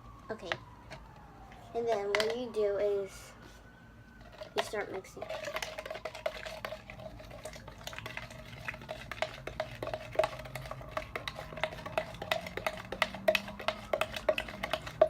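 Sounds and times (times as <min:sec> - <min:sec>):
utensil clinking against bowl: 0:04.3 - 0:15.0.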